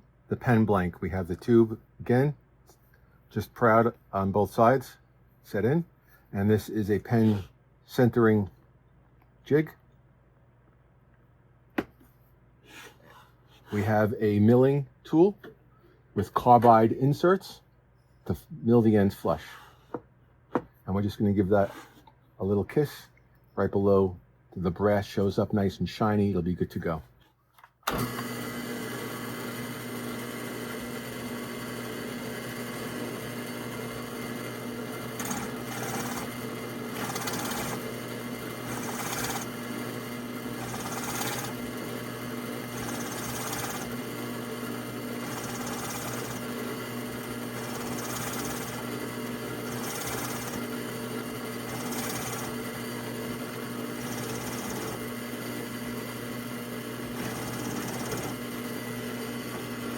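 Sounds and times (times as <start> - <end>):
drill press running: 27.9 - 59.9.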